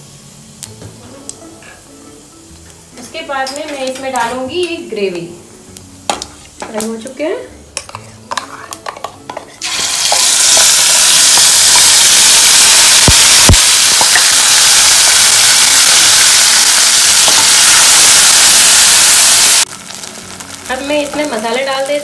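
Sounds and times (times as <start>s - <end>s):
paste sizzling in hot oil: 9.3s - 22.0s.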